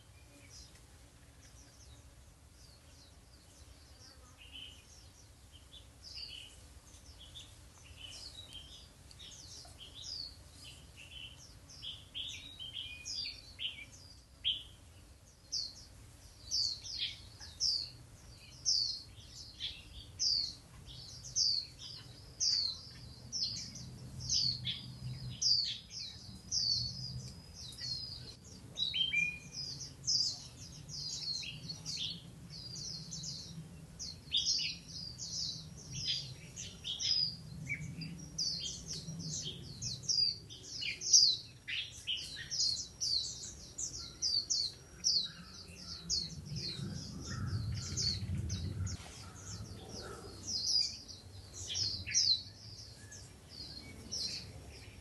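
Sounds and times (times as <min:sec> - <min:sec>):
songbird chirps: 0:00.0 - 0:55.0
other birds calling: 0:16.5 - 0:55.0.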